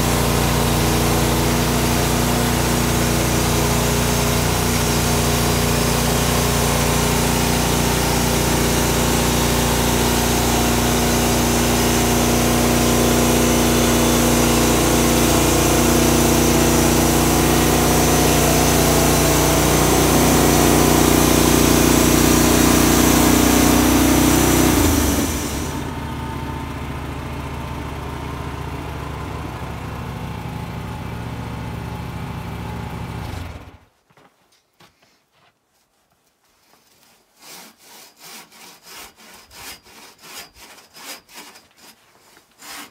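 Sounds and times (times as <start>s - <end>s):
sawmill engine running: 0.0s - 33.8s.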